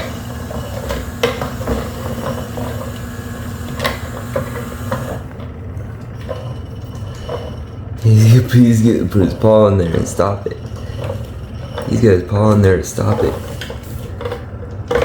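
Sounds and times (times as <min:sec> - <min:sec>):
small motor humming: 0:00.0 - 0:05.5.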